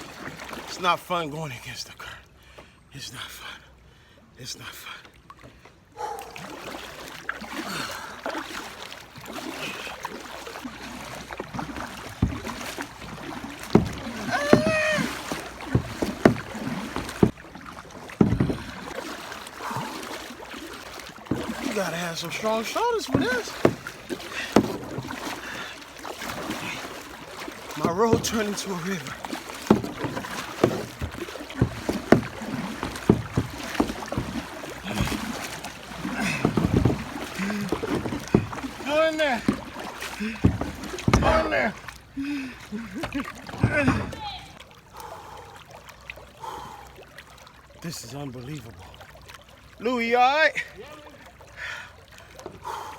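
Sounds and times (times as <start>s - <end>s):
water rushing and splashing: 0.0s - 3.1s, 4.4s - 52.9s
small knocks on kayak: 11.2s - 19.2s, 20.9s - 21.8s, 23.0s - 42.1s, 43.0s - 44.4s
running water hiss: 12.4s - 17.3s
low thump: 13.7s - 15.0s, 18.2s - 18.7s, 40.4s - 41.7s.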